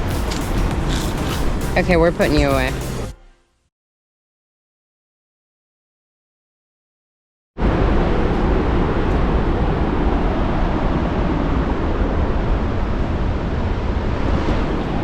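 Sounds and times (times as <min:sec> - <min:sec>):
wind on microphone: 0:07.6 - 0:15.0.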